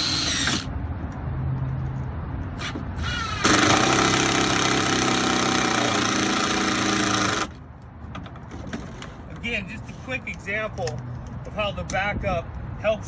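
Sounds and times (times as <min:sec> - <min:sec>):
power drill driving a screw: 0:00.0 - 0:00.7, 0:02.6 - 0:07.5.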